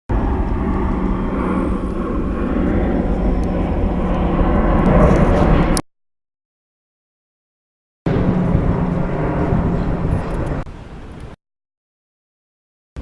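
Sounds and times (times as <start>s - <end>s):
military aircraft flying over: 0.1s - 5.8s, 8.1s - 11.4s.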